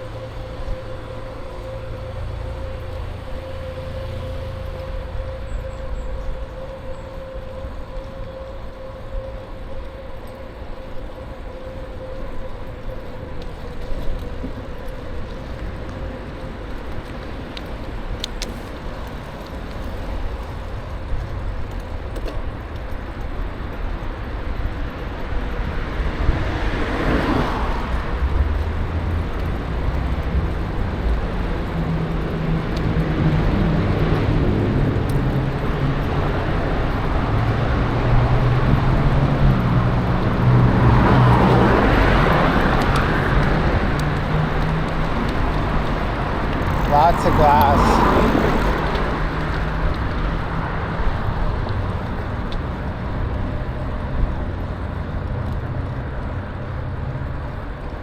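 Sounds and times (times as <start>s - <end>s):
road traffic rumble: 0.0s - 58.0s
vehicle passing: 36.0s - 52.0s
engine revving: 45.6s - 49.5s.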